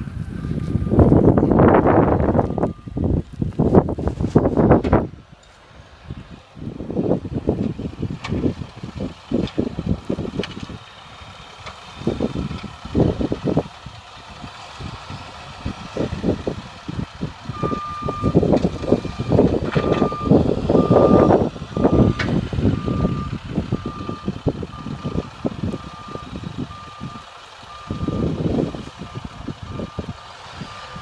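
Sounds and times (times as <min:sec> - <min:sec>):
truck rumbling: 0:00.0 - 0:31.0
truck reverse alarm beeping: 0:00.2 - 0:03.0, 0:15.7 - 0:31.0.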